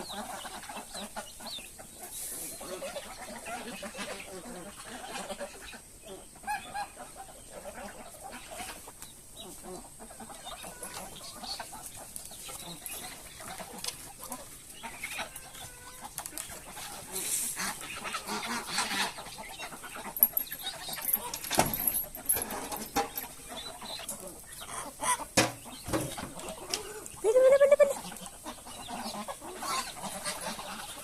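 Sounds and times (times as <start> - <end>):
chickens clucking: 0.0 - 31.0
light knocks and rustles: 20.2 - 23.4, 25.4 - 26.8.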